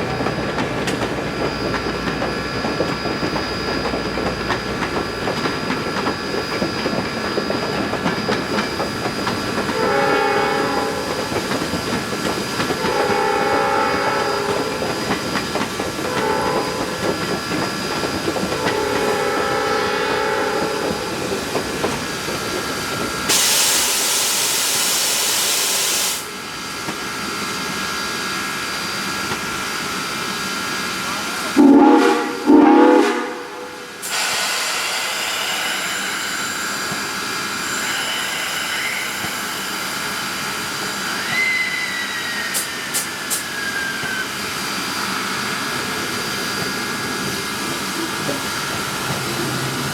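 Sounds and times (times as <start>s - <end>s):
steam locomotive chime whistle: 9.7s - 11.3s, 12.7s - 15.1s, 16.0s - 17.1s, 18.5s - 21.2s, 31.6s - 36.7s, 41.1s - 44.3s
steam hiss: 20.9s - 49.9s.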